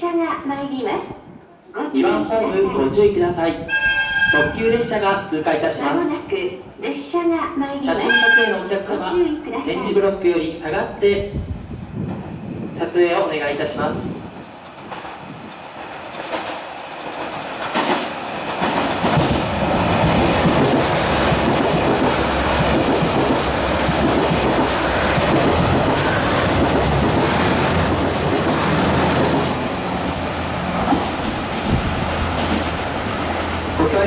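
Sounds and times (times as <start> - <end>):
diesel train passing at speed: 11.3 - 34.0.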